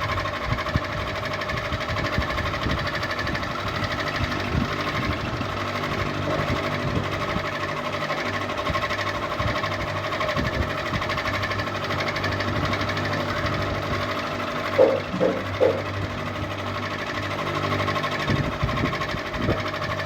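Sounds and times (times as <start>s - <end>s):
ceiling fan running: 0.0s - 20.0s.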